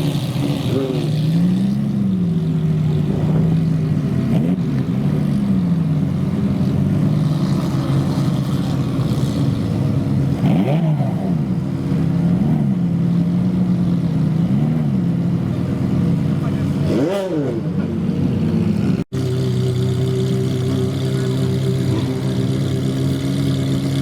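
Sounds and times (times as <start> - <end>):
car engine idling: 0.0 - 17.0, 17.6 - 24.0
throttle revs: 18.8 - 24.0.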